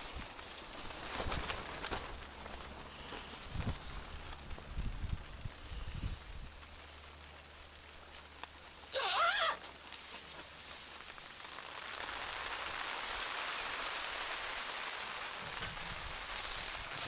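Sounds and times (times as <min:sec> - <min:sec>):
rain hissing: 0:00.0 - 0:17.0
loud wavering call: 0:09.0 - 0:09.6.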